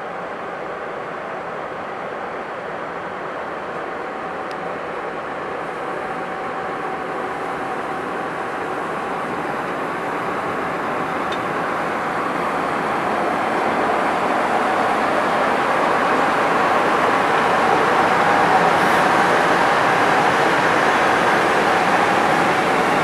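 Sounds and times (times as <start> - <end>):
electric locomotive running: 4.3 - 23.0.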